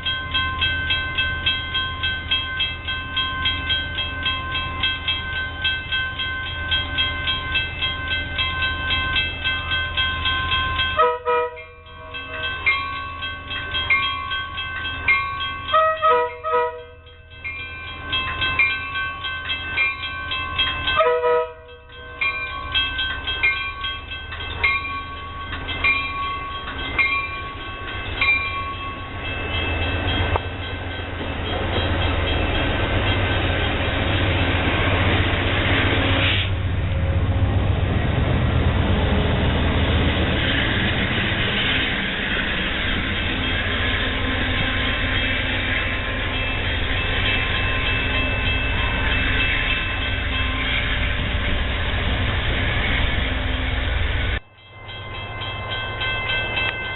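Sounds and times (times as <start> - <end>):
train rumble: 0.0 - 56.9
locomotive horn blasts: 11.0 - 11.8, 15.7 - 17.0, 21.0 - 21.8.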